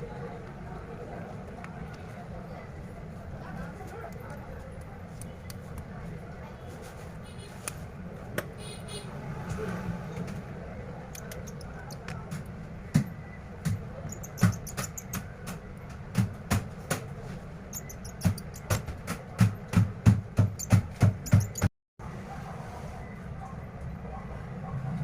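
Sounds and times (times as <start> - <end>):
smartphone parts clicking: 11.1 - 12.5, 13.6 - 17.0, 17.7 - 19.5.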